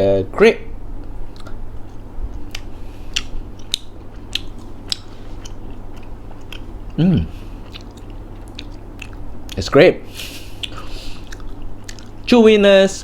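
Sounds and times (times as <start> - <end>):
wet mouth clicks: 1.0 - 5.6, 10.6 - 12.2
chewing gummy candy: 1.3 - 9.6, 10.6 - 12.3.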